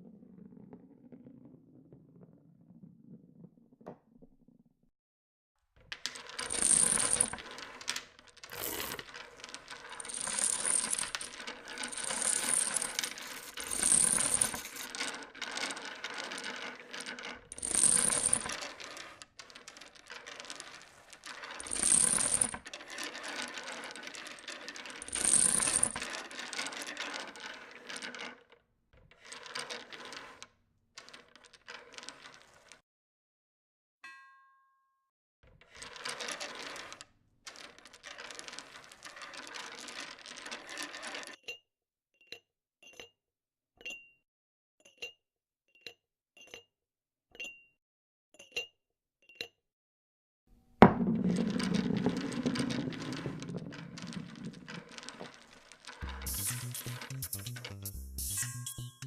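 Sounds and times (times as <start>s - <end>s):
marbles rattling down a marble run: 6.0s - 28.5s, 29.2s - 32.8s, 35.8s - 41.4s, 50.8s - 59.0s.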